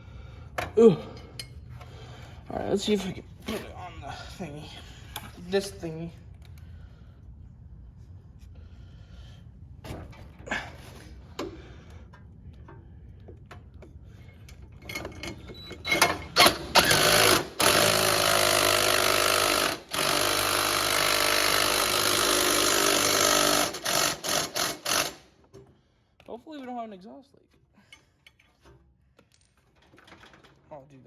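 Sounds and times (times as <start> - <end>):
power tool driving fasteners: 15.0 - 25.3.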